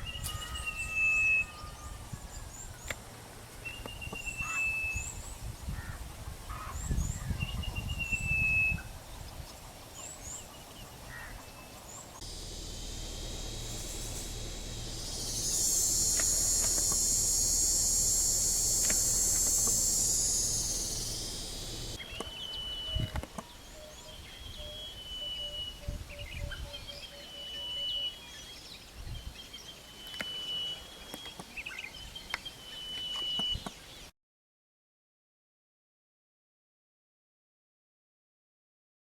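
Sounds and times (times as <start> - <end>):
bird whistling: 0.0 - 2.0, 12.2 - 28.4, 29.9 - 33.8
high-pitched insect chorus: 12.2 - 22.0
bird low notes: 12.2 - 26.7.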